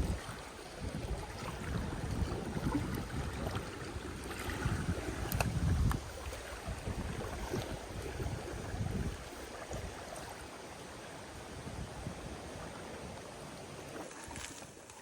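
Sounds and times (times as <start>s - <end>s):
wind gusting on microphone: 0.0s - 10.4s, 11.3s - 13.7s
water lapping at shore: 0.0s - 15.0s.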